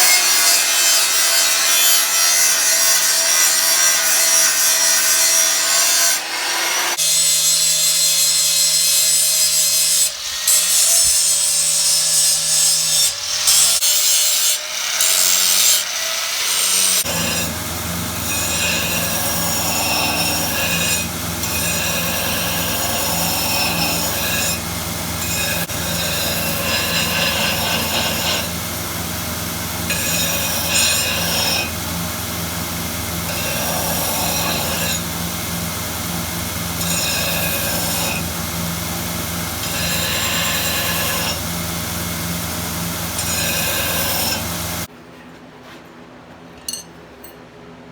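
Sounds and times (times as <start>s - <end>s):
grinder rasping on steel: 0.0s - 44.9s
grinder motor humming: 17.0s - 44.9s.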